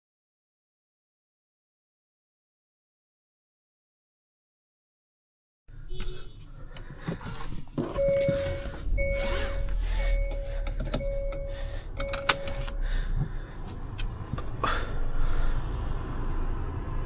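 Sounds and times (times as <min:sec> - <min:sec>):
car engine rumbling: 0:05.7 - 0:17.0
car warning chime beeping: 0:07.9 - 0:12.9.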